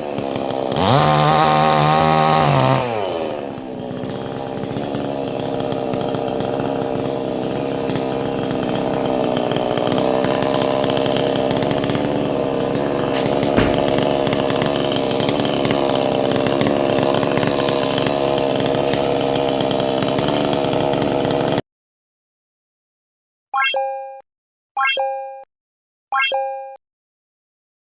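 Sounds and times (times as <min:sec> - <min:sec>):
chainsaw cutting wood: 0:00.0 - 0:21.6
sharp knock: 0:13.5 - 0:14.0.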